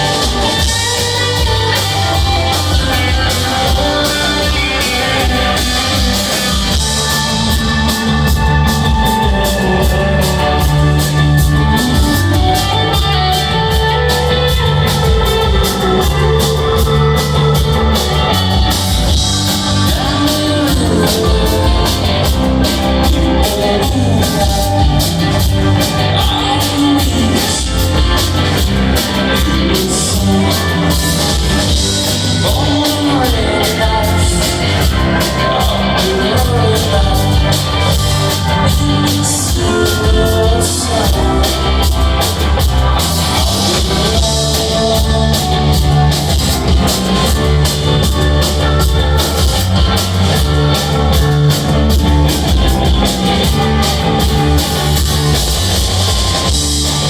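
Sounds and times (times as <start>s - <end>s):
drum kit beat: 0.0s - 57.0s
electric guitar: 0.0s - 57.0s
rock band playing live: 0.0s - 57.0s.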